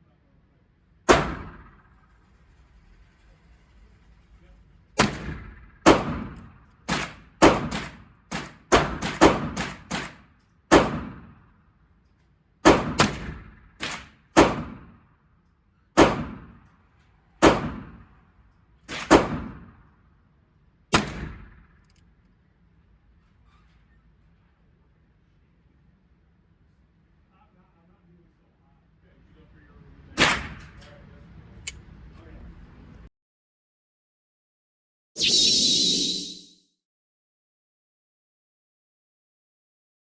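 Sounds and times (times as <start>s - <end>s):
gunshots with echo: 1.1s - 2.0s, 5.0s - 11.4s, 12.6s - 15.0s, 16.0s - 16.6s, 17.4s - 18.1s, 18.9s - 19.8s, 20.9s - 21.7s.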